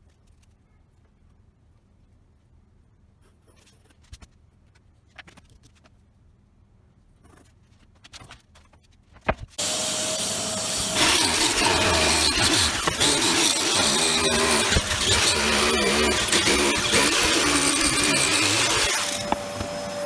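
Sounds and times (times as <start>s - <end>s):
power tool running: 9.6s - 20.0s
handling knocks and clicks: 18.0s - 20.0s.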